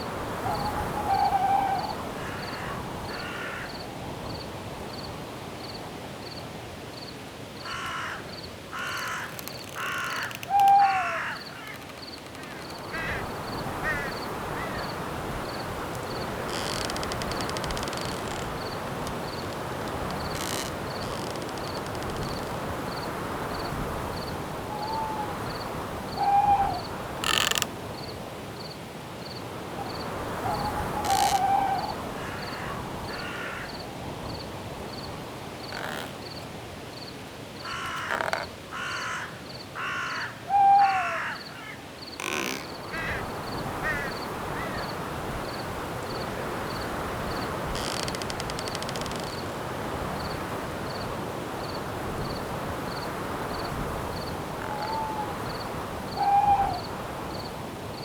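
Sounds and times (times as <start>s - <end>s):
wind in the trees: 0.0s - 58.0s
falling hoot-like bird calls: 0.4s - 3.7s, 9.8s - 14.9s, 24.7s - 26.9s, 30.4s - 33.4s, 39.8s - 41.8s, 54.6s - 56.9s
crickets ticking: 2.2s - 40.3s, 41.2s - 58.0s
harsh bird calls: 8.8s - 19.5s, 30.5s - 33.7s.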